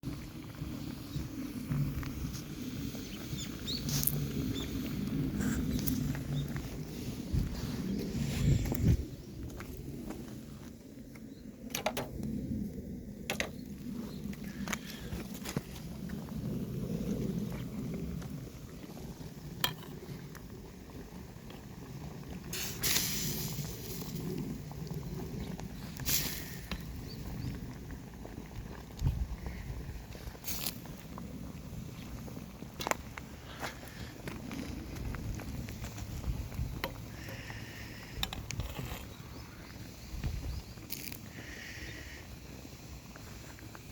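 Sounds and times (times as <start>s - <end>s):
bonfire crackling: 0.0s - 43.9s
campfire hissing: 0.0s - 43.9s
steady low rumble: 0.0s - 43.9s
hissing rush: 0.6s - 10.5s, 21.9s - 27.9s
sharp fire pop: 22.5s - 24.2s.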